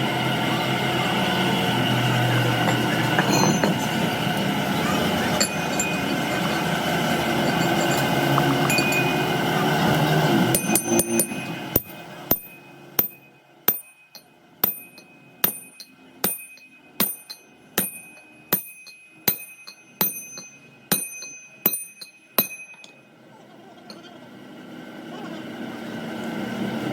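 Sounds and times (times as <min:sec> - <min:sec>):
workshop machine noise: 0:00.0 - 0:26.9
hammer striking metal: 0:02.6 - 0:04.5, 0:05.3 - 0:06.7, 0:07.3 - 0:09.6, 0:10.4 - 0:23.1.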